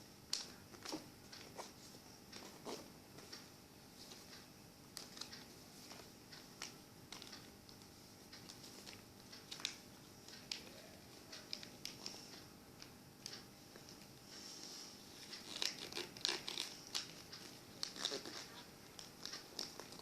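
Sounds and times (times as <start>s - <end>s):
paper being folded: 15.2s - 20.0s.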